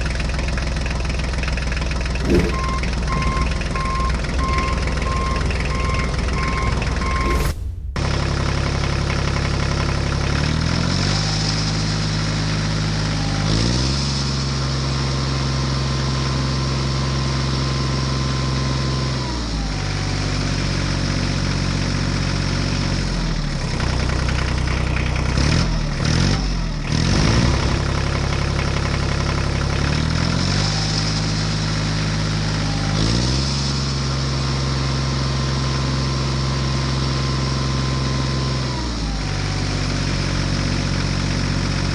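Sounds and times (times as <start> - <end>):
tractor engine running: 0.0 - 10.9, 26.0 - 32.8.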